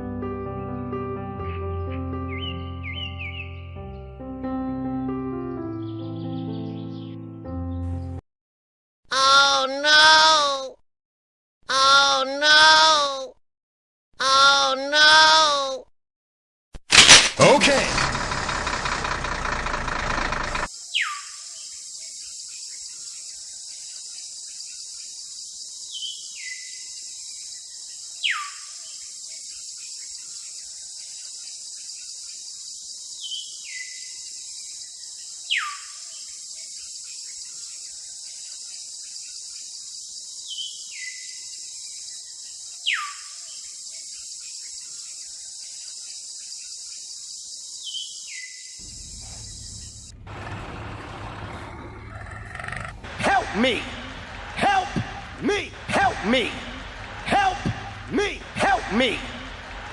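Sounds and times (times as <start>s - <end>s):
bird-like call with whistle: 20.9s - 21.4s, 28.2s - 28.7s, 35.5s - 36.0s, 42.8s - 43.4s
high insect buzz: 48.8s - 50.2s
low hum: 48.8s - 59.9s.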